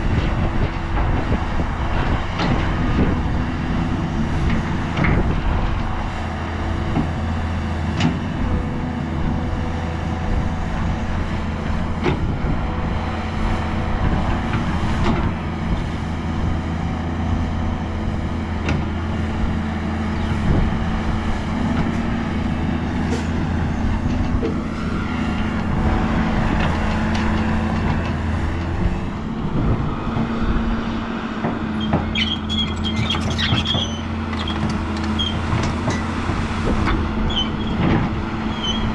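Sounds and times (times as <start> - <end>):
heavy diesel machinery running: 0.0 - 38.9
high squeaks: 31.8 - 35.4.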